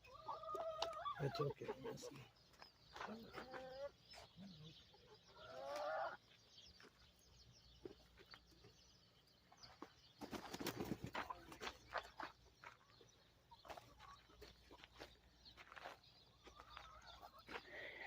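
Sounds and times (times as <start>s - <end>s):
hens calling softly: 0.0s - 2.3s.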